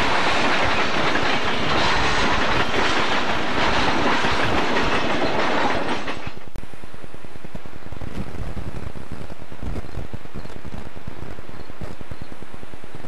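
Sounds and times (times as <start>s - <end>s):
freight train cars rattling past: 0.0s - 6.5s.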